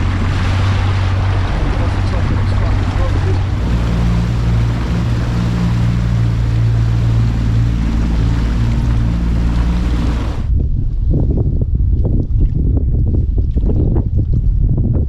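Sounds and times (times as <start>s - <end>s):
outboard motor humming: 0.0s - 10.5s
wind and water noise: 0.0s - 15.0s
wind buffeting microphone: 0.0s - 15.0s.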